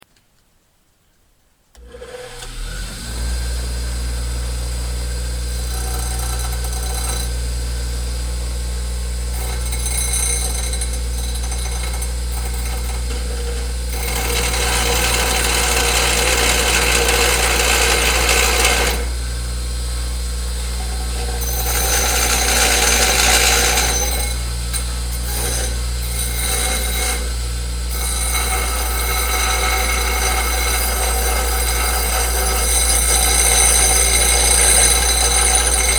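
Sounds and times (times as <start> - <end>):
grinding wheel motor humming: 3.2 - 35.9
metal grinding on wheel: 5.4 - 7.6, 9.3 - 35.9.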